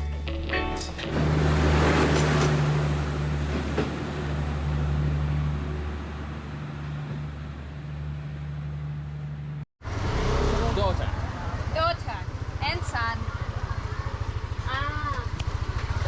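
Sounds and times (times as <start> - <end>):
background music: 0.0 - 1.9
wind and road noise: 0.2 - 16.0
motorbike engine running: 10.6 - 16.0.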